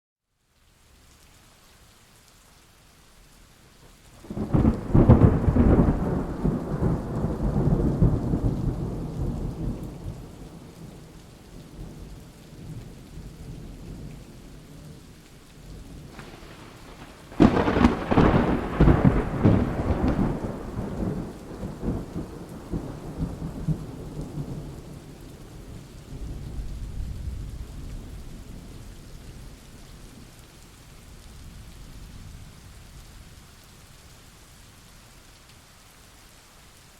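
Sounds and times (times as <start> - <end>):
rain falling: 0.2 - 36.9
thunder rolling: 4.2 - 10.8, 16.0 - 25.0.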